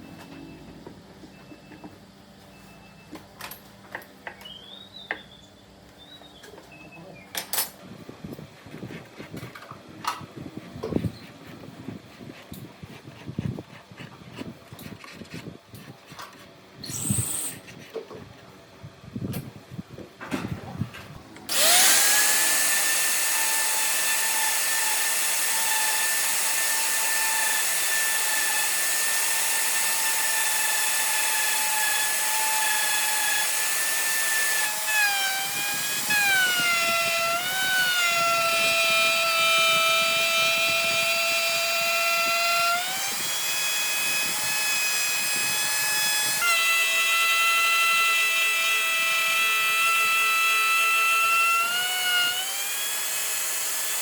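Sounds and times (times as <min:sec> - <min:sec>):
power tool motor whine: 0:16.8 - 0:17.6, 0:21.5 - 0:54.0.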